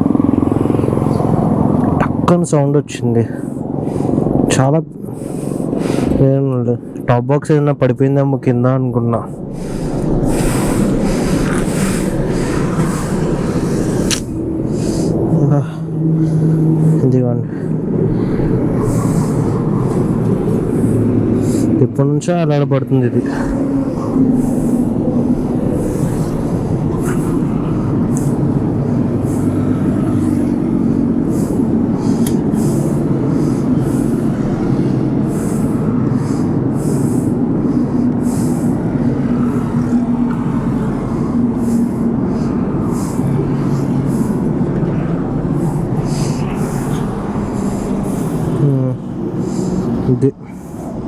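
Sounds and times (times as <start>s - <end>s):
motorcycle engine running: 0.0s - 2.2s.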